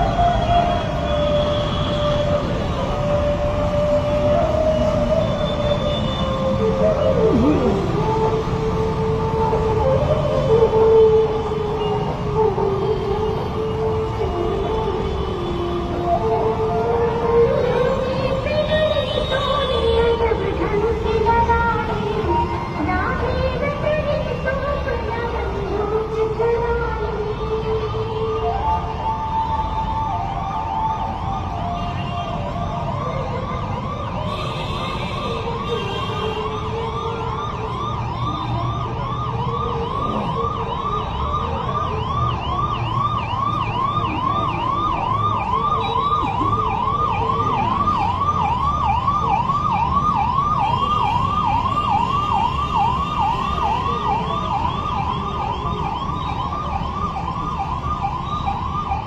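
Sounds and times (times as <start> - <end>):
engine and road rumble: 0.0 - 59.0
electronic siren yelping: 4.4 - 8.6, 32.9 - 59.0.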